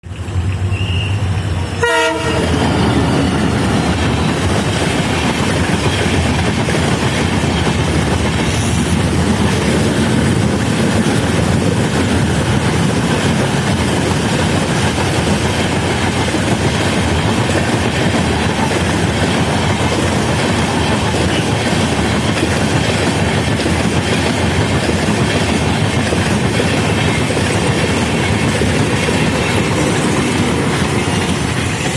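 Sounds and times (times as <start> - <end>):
train rumbling past on rails: 0.0 - 31.9.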